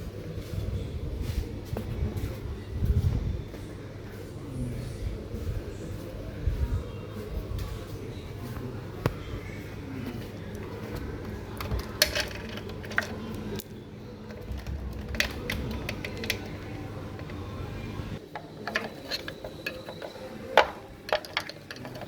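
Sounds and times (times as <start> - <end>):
low background hum: 0.0 - 22.0
hand tools clinking on metal: 10.0 - 22.0.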